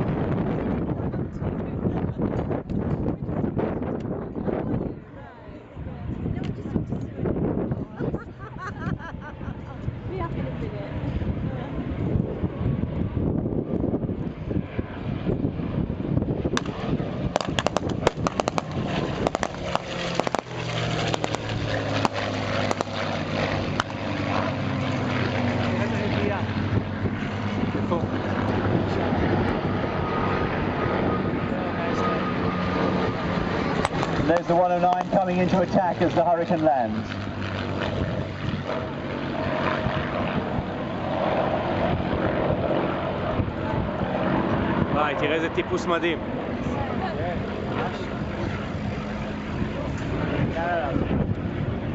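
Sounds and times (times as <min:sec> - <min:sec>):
propeller plane engine droning: 0:00.0 - 0:51.9
wind buffeting microphone: 0:00.0 - 0:51.9
sharp cracks: 0:16.6 - 0:24.2, 0:33.8 - 0:35.2.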